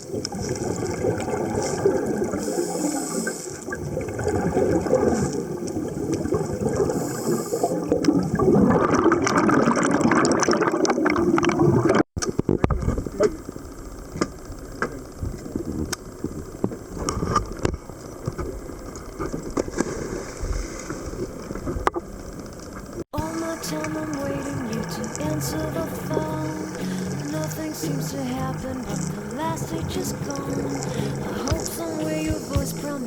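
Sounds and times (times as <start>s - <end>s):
regulator bubbles gurgling: 0.0s - 33.0s
underwater hiss: 1.4s - 3.8s, 6.6s - 8.1s, 23.2s - 33.0s.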